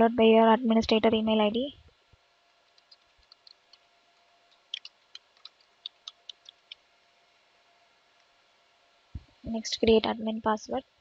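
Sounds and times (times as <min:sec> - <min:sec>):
faint keyboard keystrokes: 0:02.7 - 0:03.9, 0:04.5 - 0:06.8.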